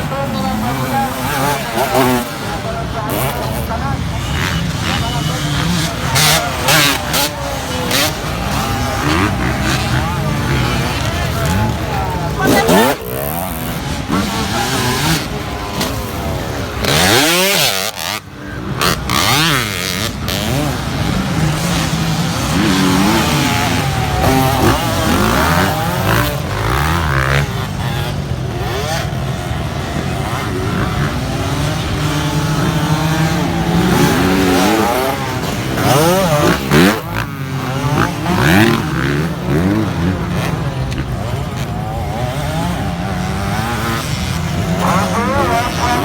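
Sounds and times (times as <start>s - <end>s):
dirt bike engines revving: 0.0s - 46.0s.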